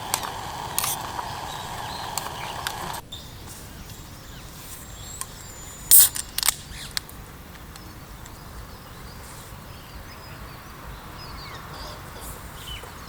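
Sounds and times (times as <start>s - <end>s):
sharp clicks: 0.0s - 3.0s, 5.2s - 8.4s
faint background hiss: 0.0s - 13.0s.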